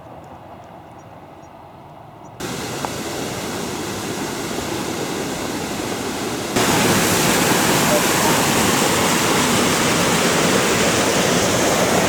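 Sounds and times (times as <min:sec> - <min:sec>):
rushing water: 0:02.4 - 0:12.0.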